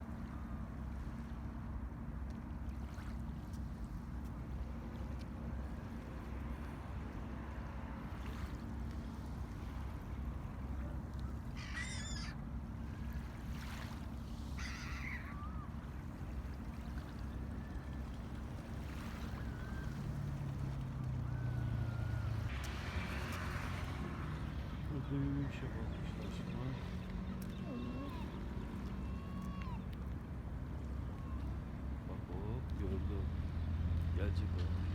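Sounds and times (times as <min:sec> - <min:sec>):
low outdoor rumble: 0:00.0 - 0:34.9
low hum: 0:00.1 - 0:34.9
faint bird chirps: 0:11.2 - 0:12.4, 0:14.6 - 0:15.8
bird calls: 0:11.2 - 0:13.3, 0:14.5 - 0:22.5, 0:24.8 - 0:30.0.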